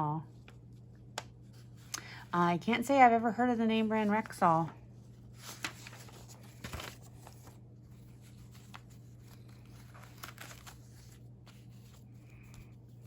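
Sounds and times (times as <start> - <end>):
newspaper pages rustling: 3.8 - 13.0.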